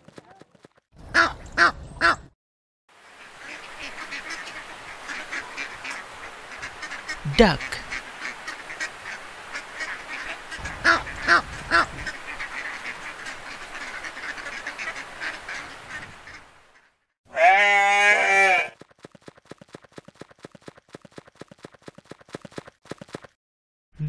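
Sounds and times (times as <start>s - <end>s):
ducks quacking: 1.0s - 2.3s, 3.2s - 17.0s.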